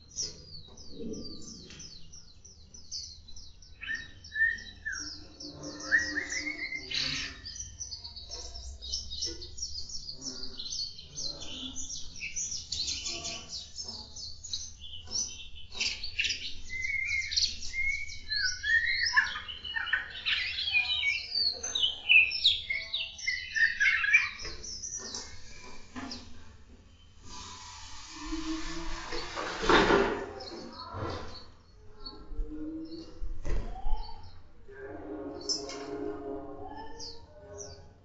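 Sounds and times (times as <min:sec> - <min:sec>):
birds chirping: 0:00.0 - 0:38.0
low sliding bird whistles: 0:27.2 - 0:30.0.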